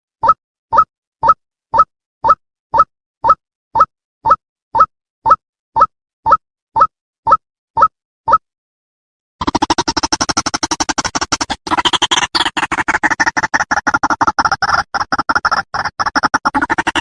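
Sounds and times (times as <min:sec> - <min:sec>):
waterhen calling harsh repeated notes: 0:09.4 - 0:17.0.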